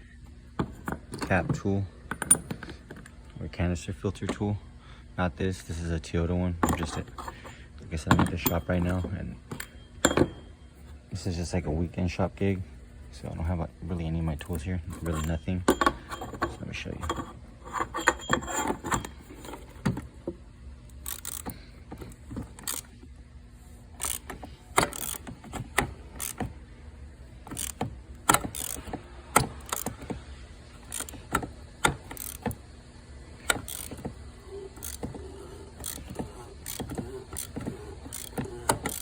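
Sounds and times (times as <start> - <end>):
steady low hum: 0.0 - 39.0
ratchet metallic clicks and clanks: 6.6 - 10.6, 14.3 - 20.1, 20.9 - 23.0, 24.0 - 26.5, 27.4 - 32.6, 33.4 - 39.0.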